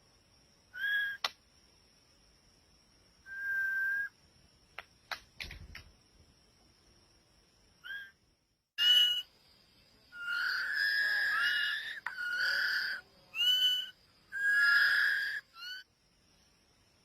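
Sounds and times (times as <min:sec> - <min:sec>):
bird whistling: 0:03.3 - 0:04.1, 0:08.8 - 0:09.3, 0:10.2 - 0:15.8.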